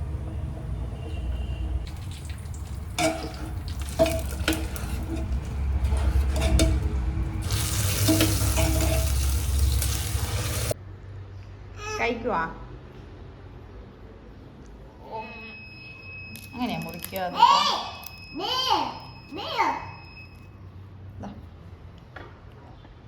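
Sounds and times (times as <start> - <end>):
low steady rumble: 0.0 - 10.8
metal utensils clinking: 1.9 - 10.8.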